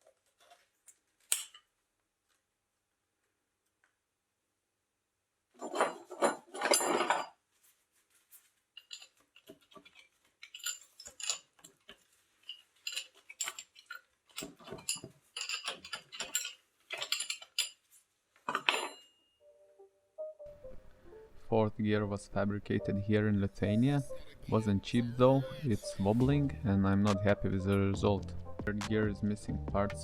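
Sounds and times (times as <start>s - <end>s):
metal parts clattering: 5.6s - 7.4s, 8.8s - 19.2s.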